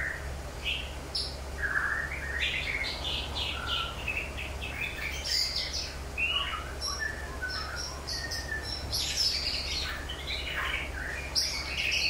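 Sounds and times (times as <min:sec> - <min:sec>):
birds chirping and whistling: 0:00.0 - 0:12.0
steady low hum: 0:00.0 - 0:12.0.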